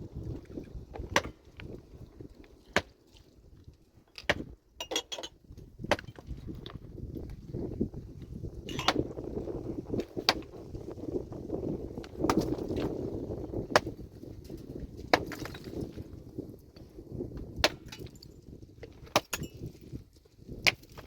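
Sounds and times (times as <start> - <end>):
tools and stones striking rock: 0.5 - 1.8, 2.6 - 3.0, 4.0 - 7.4, 8.6 - 9.2, 9.9 - 10.5, 12.1 - 13.0, 13.6 - 16.1, 17.4 - 21.0.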